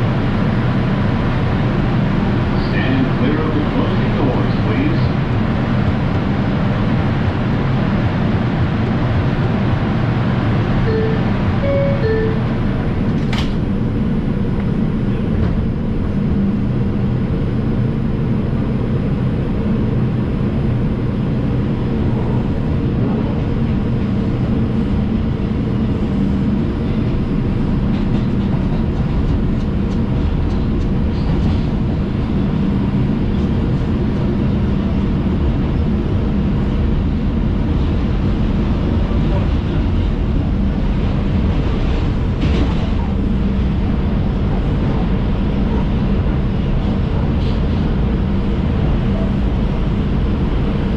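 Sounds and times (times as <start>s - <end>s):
train wheels rumbling on rail: 0.0s - 50.9s
low even hum: 10.6s - 50.9s.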